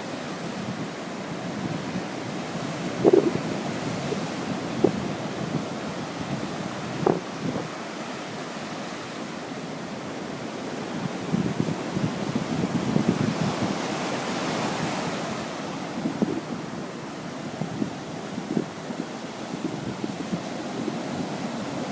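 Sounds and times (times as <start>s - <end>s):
wind buffeting microphone: 1.6s - 7.8s.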